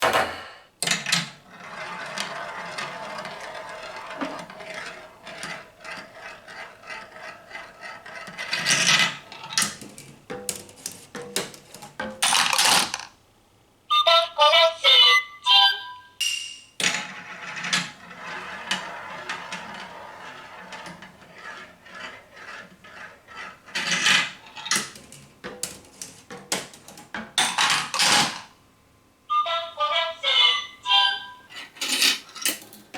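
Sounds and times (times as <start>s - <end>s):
marbles rolling down plastic track: 0.9s - 13.1s, 16.8s - 28.5s.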